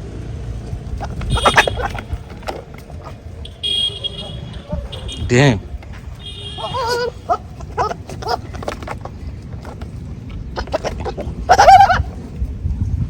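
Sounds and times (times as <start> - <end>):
goats and sheep bleating: 1.0 - 2.1, 6.2 - 8.7.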